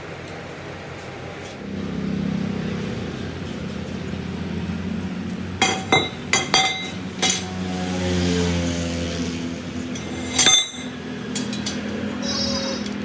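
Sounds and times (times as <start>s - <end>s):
machine humming: 0.0s - 13.0s
metal clanks ringing: 3.2s - 7.9s, 9.1s - 13.0s.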